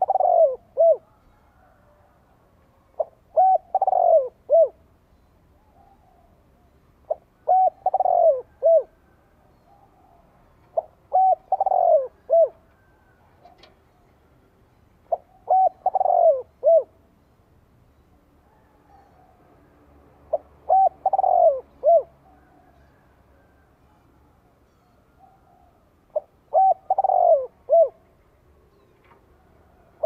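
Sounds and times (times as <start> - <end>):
dove cooing: 0.0 - 2.3, 2.9 - 4.9, 5.7 - 13.7, 15.1 - 17.0, 20.3 - 24.0, 25.2 - 30.0.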